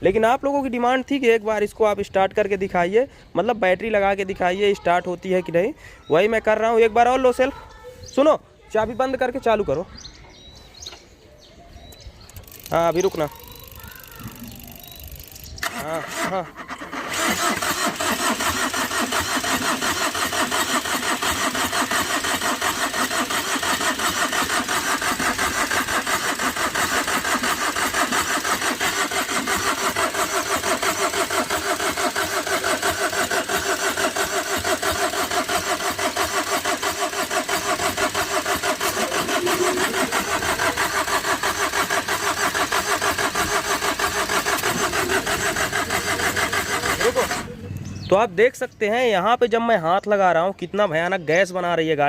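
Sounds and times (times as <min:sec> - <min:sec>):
engine cranking on starter motor: 0:11.8 - 0:48.2.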